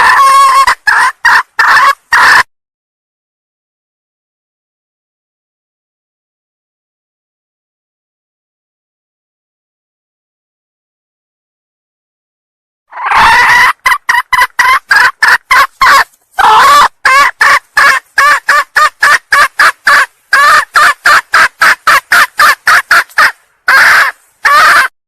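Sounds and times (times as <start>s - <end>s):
junglefowl hen clucking: 0.0s - 2.5s, 12.9s - 24.9s.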